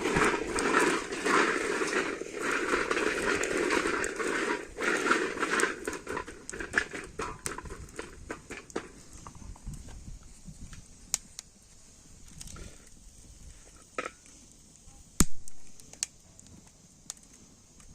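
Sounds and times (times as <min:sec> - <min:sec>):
chestnuts rattling on metal pan: 0:00.0 - 0:09.1.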